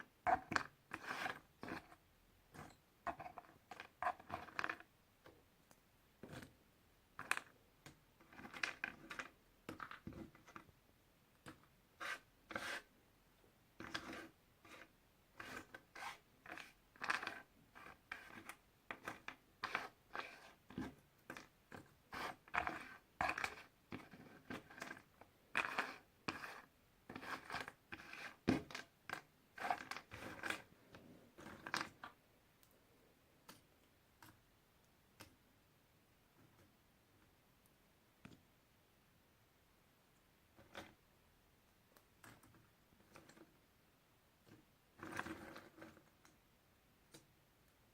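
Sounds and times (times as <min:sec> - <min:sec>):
puzzle pieces scraping: 0:00.4 - 0:02.0, 0:22.1 - 0:28.8, 0:29.6 - 0:30.7.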